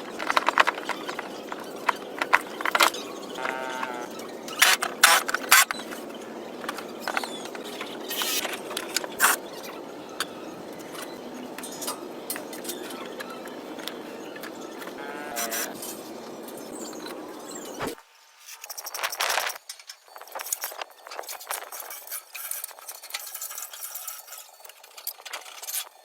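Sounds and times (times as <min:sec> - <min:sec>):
short squeak: 0:16.9 - 0:18.0.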